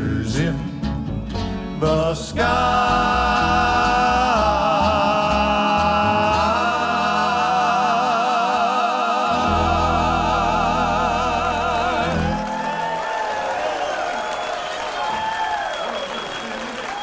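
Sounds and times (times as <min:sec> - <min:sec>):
vocal group singing a chord: 0:00.0 - 0:00.9, 0:01.7 - 0:13.4
band accompaniment with bass: 0:00.0 - 0:08.2, 0:09.2 - 0:13.2.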